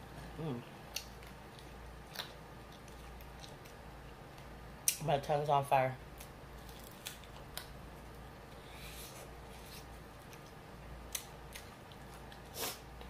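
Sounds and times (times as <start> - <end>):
faint low hum: 0.0 - 13.0
person crunching fried chicken: 6.6 - 7.7.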